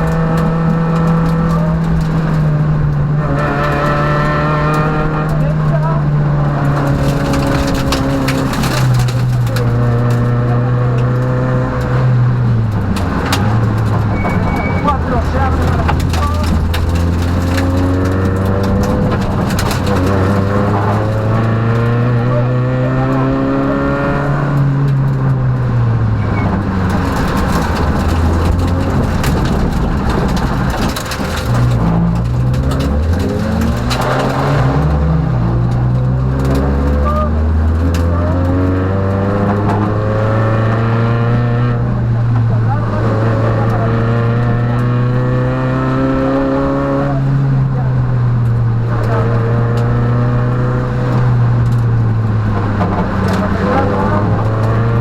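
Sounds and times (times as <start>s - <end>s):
car engine pulling hard: 0.0s - 55.0s
road noise: 0.0s - 55.0s
sharp clicks and knocks: 6.5s - 22.1s, 24.5s - 40.9s, 51.0s - 55.0s.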